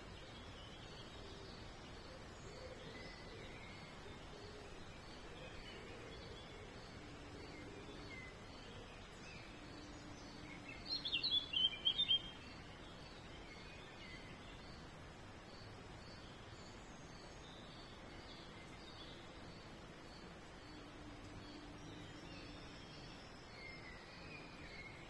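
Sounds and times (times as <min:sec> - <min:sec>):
outdoor background noise: 0:00.0 - 0:25.0
songbird chirping: 0:00.0 - 0:25.0
faint bird calls: 0:01.0 - 0:12.9.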